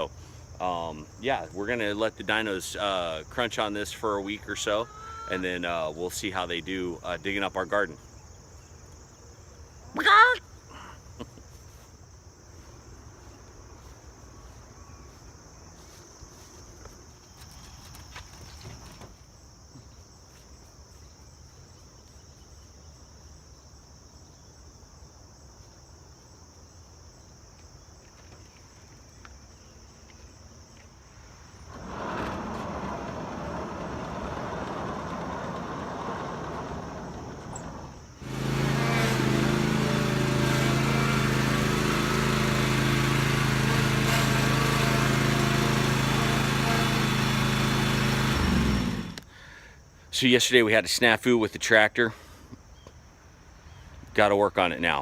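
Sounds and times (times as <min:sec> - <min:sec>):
insects chirring: 0:00.0 - 0:38.3, 0:49.0 - 0:55.0
small engine humming: 0:31.7 - 0:49.4.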